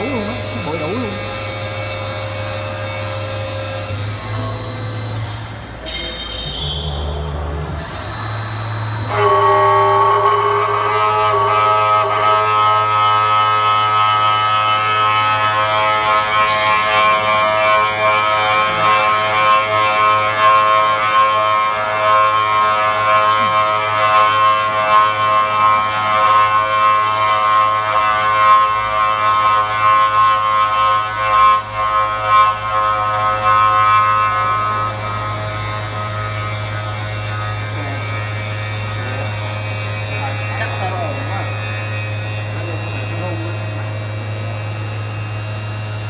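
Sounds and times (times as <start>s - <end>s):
electrical hum: 0.0s - 3.7s, 8.9s - 14.1s
spindle motor high whine: 0.0s - 5.7s, 7.7s - 46.0s.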